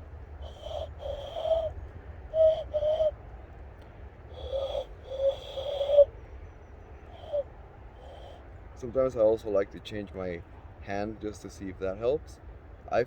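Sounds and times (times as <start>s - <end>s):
hand-blown owl-like hoots: 0.0s - 3.3s, 4.2s - 6.2s, 7.0s - 8.6s.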